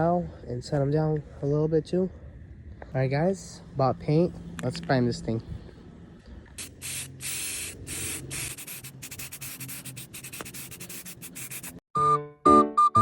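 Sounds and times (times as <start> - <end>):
spray can hissing: 6.6 - 11.8
person whistling a tune: 12.0 - 13.0.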